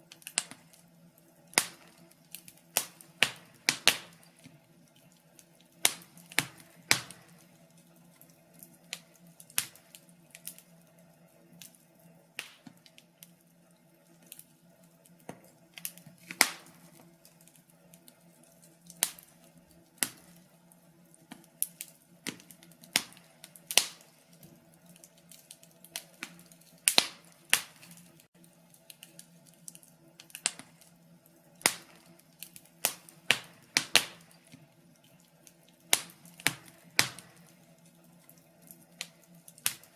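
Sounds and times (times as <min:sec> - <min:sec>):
faint steady hum: 0:00.0 - 0:39.9
wood fire crackling and popping: 0:00.0 - 0:39.9.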